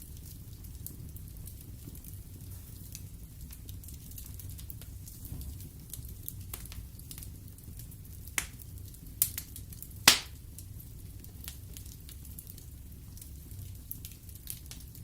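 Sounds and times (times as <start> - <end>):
wood fire crackling: 0.0 - 15.0
loud fire pops: 9.2 - 10.6.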